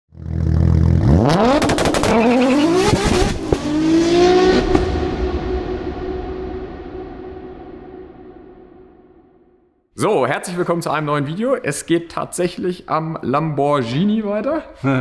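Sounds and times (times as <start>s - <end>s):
exhaust pops: 0.2s - 3.8s, 4.5s - 5.0s
car engine revving: 0.2s - 7.8s.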